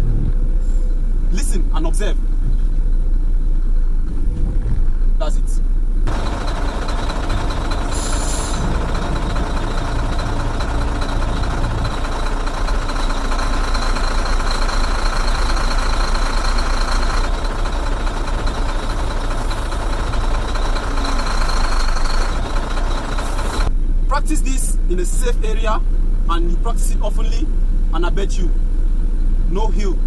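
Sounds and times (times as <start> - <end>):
truck diesel engine idling: 5.7 - 24.2.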